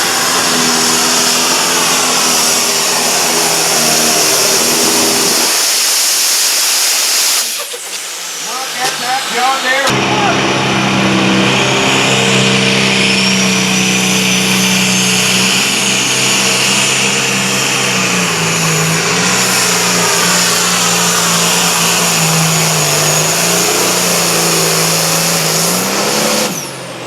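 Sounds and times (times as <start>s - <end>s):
tractor engine at full throttle: 0.0s - 27.0s
high whine: 8.3s - 26.9s.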